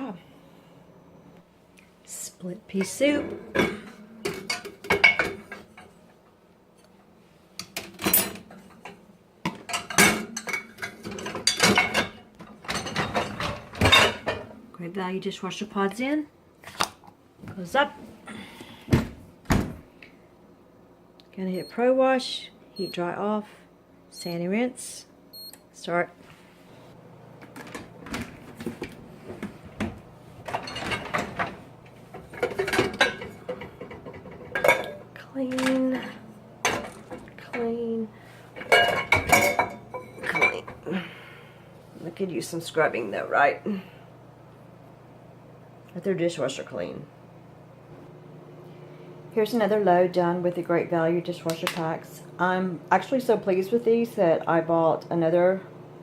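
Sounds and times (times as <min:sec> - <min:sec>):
dishes clattering and clinking: 0:02.8 - 0:06.0, 0:07.6 - 0:14.5, 0:27.6 - 0:37.7, 0:38.6 - 0:40.8.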